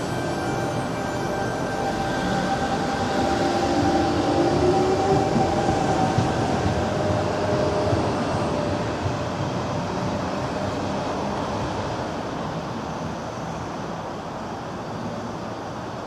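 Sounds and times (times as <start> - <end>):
electric train pulling away: 0.0 - 14.6.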